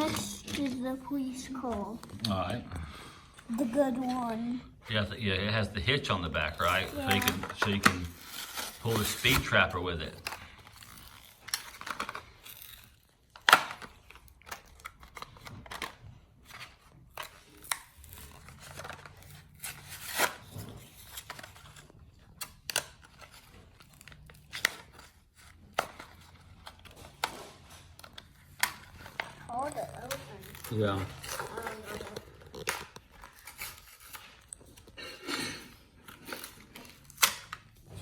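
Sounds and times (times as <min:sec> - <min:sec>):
plastic package being torn open: 0:06.6 - 0:16.0, 0:28.0 - 0:35.0, 0:36.0 - 0:37.8
plastic snapping: 0:13.4 - 0:16.0, 0:28.0 - 0:29.4, 0:30.0 - 0:35.0, 0:36.1 - 0:37.7.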